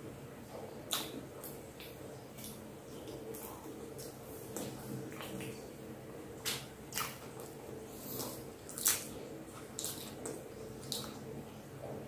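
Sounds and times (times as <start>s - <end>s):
faint steady hum: 0.0s - 12.0s
wet chewing: 6.4s - 11.2s.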